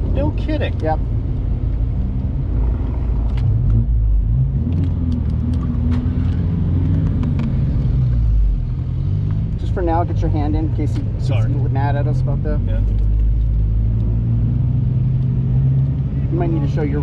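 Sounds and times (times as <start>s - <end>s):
car engine idling: 9.6s - 14.0s.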